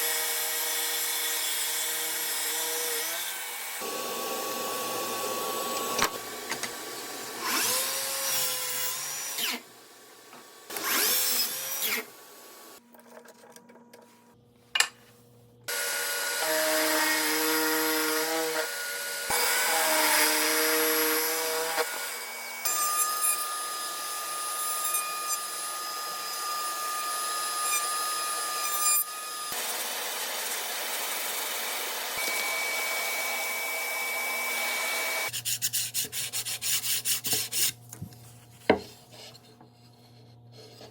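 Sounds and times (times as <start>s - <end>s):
power drill motor whine: 32.2s - 35.3s.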